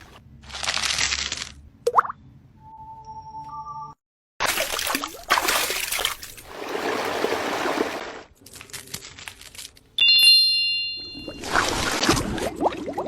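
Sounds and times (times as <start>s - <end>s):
liquid trickling and splashing: 4.4s - 8.3s
bright ringing ding: 10.0s - 11.4s.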